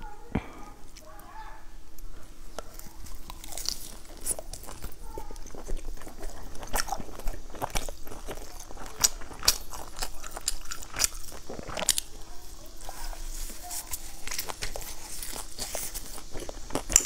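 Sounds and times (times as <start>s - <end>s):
chewing flatbread: 0.0s - 17.0s.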